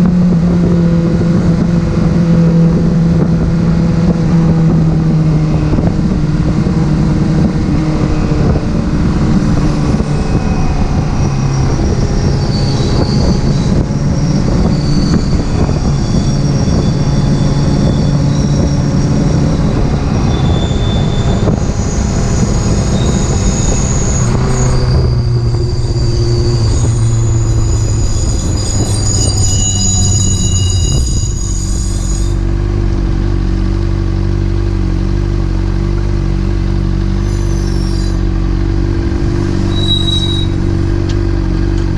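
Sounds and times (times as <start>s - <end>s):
car engine: 0.0s - 41.9s
road noise: 0.0s - 41.9s
high-pitched metallic brake squeal: 9.2s - 32.6s, 37.0s - 41.4s.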